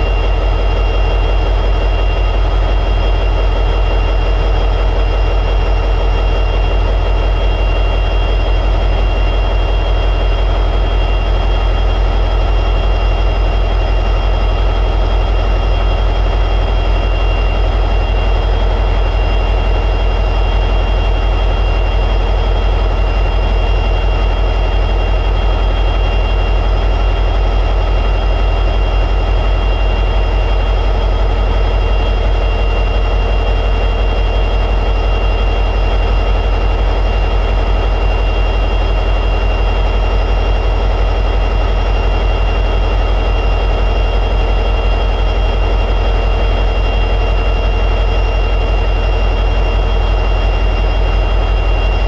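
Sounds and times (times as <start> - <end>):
high whine: 0.0 - 52.0
locomotive diesel engine idling: 0.0 - 52.0.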